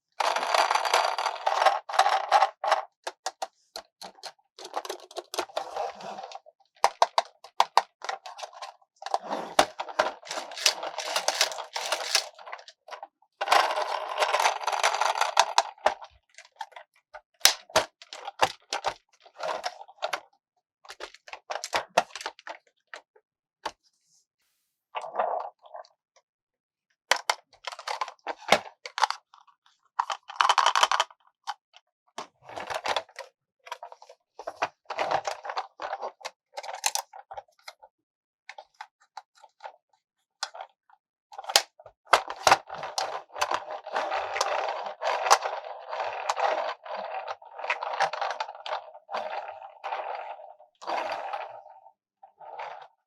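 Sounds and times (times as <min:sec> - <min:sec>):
scraping and rustling: 0:10.3 - 0:12.3
toy car taps and clicks: 0:10.3 - 0:12.3.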